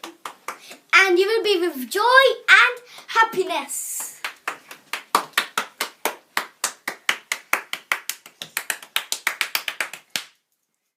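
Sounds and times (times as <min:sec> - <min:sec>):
hands clapping: 0:00.0 - 0:00.9, 0:02.6 - 0:10.4.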